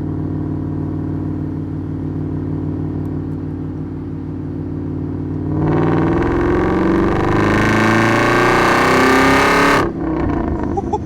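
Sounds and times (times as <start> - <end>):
car exhaust accelerating: 0.0 - 11.0.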